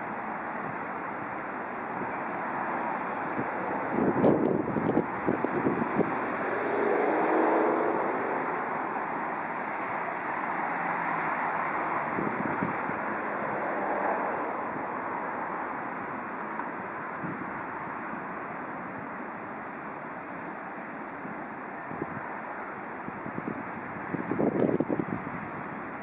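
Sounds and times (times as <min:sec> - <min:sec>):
freight train rumbling: 0:00.0 - 0:17.8.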